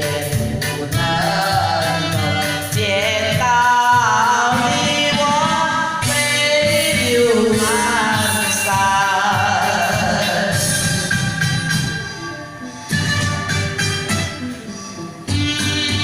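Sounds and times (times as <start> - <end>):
person singing: 0.0 - 12.7
backing music: 0.0 - 16.0.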